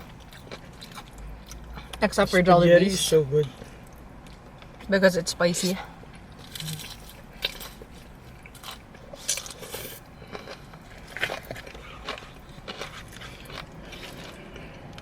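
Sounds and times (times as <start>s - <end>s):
chewing crispy fried chicken: 0.0s - 2.0s, 6.1s - 15.0s.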